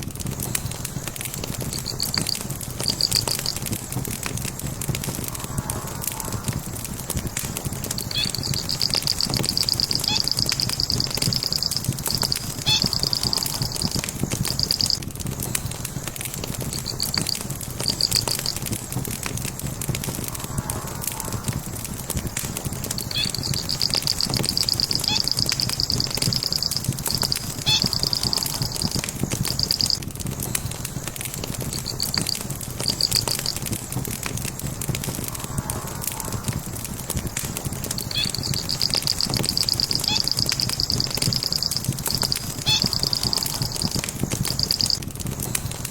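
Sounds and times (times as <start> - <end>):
logs crackling in fireplace: 0.0 - 45.9
rapid high-pitched chirping: 0.4 - 4.0, 7.6 - 19.0, 22.7 - 33.9, 37.6 - 45.7.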